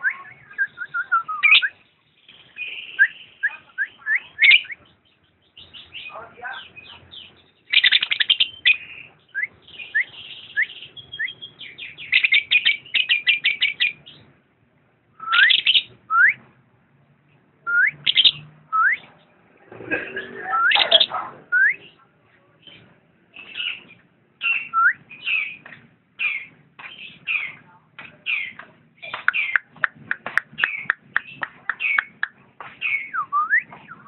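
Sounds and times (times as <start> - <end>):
lovebird chirping: 0.0 - 14.3, 15.2 - 16.4, 17.7 - 19.4, 20.0 - 22.8, 23.4 - 27.6, 28.2 - 34.0.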